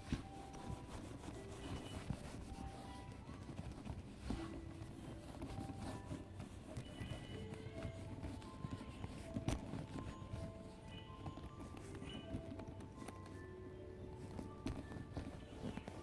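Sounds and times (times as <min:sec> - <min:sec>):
wipe rubbing on leather: 0:00.0 - 0:10.5
soft background music: 0:00.0 - 0:16.0.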